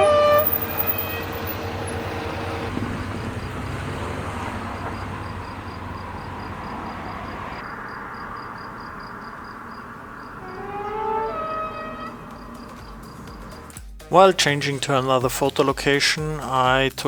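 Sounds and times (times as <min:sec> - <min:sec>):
diesel locomotive engine rumble: 0:00.0 - 0:13.8.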